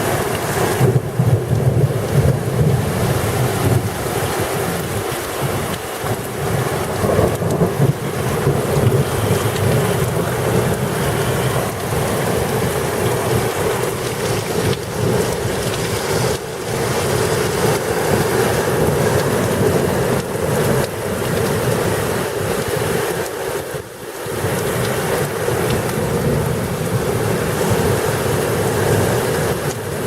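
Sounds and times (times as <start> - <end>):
heavy rain pouring: 0.0 - 30.0
low rumble of thunder: 0.1 - 22.2.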